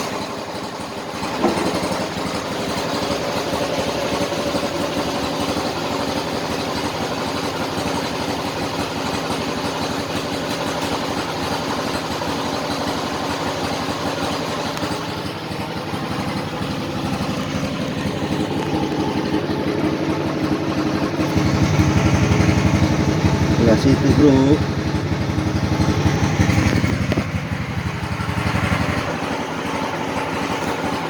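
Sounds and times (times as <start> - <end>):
diesel engine idling: 0.0 - 31.0.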